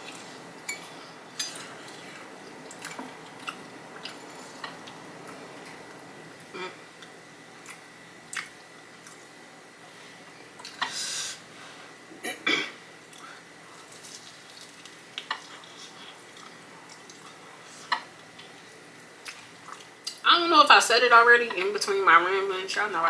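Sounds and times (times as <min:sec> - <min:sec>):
wet chewing and mouth smacks: 0:01.4 - 0:09.3, 0:13.1 - 0:18.6, 0:19.2 - 0:20.2.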